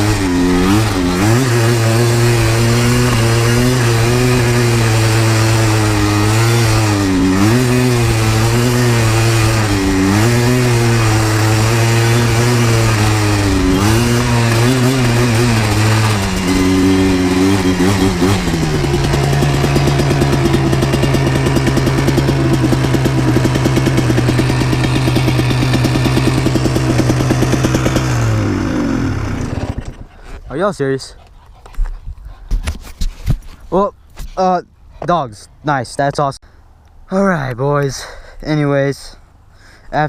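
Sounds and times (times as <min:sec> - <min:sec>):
two-stroke quad engine running: 0:00.0 - 0:30.2.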